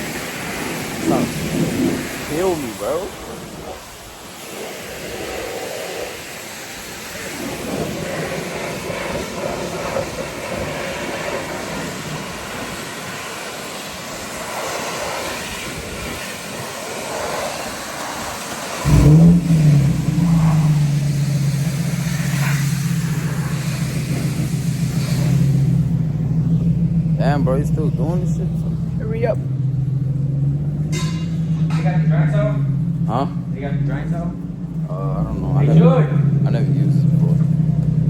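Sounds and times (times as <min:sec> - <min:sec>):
car engine starting and idling: 0:00.0 - 0:04.4, 0:18.8 - 0:38.0
steady rushing hiss: 0:00.0 - 0:34.9.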